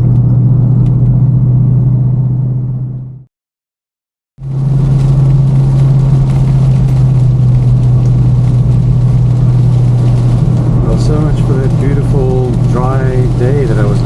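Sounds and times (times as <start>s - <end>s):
low steady hum: 0.0s - 3.2s
car engine and road noise: 0.0s - 3.3s, 4.4s - 14.0s.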